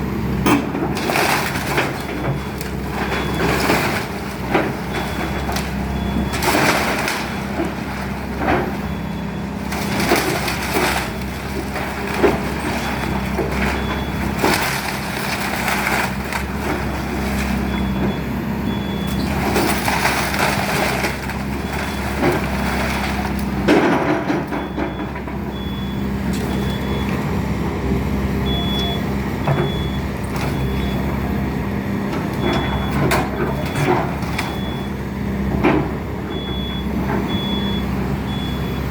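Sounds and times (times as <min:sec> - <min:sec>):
excavator diesel engine running: 0:00.0 - 0:38.9
debris cracking and crunching: 0:00.6 - 0:27.1
reverse alarm beeping: 0:24.5 - 0:27.2, 0:28.4 - 0:31.2, 0:32.4 - 0:35.0, 0:36.3 - 0:38.9.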